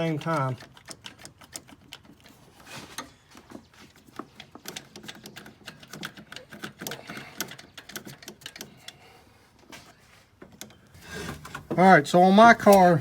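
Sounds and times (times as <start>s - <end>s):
oil dipstick clicking and rattling: 0.0s - 2.4s, 4.0s - 9.0s, 10.4s - 13.0s.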